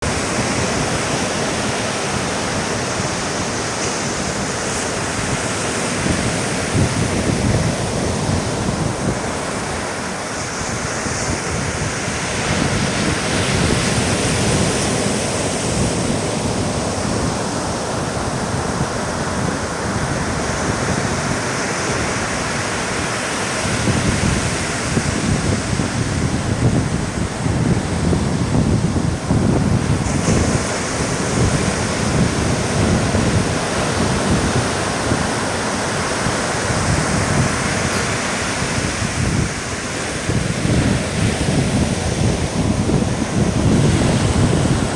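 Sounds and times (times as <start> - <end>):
sea surf washing onto beach: 0.0 - 44.9
wind buffeting microphone: 0.0 - 44.9.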